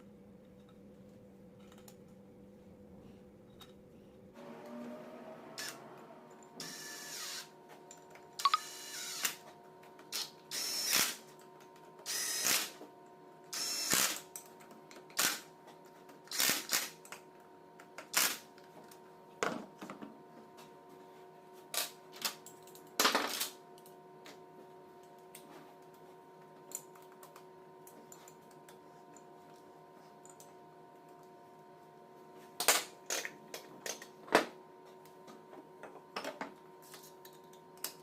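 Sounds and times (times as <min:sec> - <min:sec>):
faint steady hum: 0:17.0 - 0:38.0.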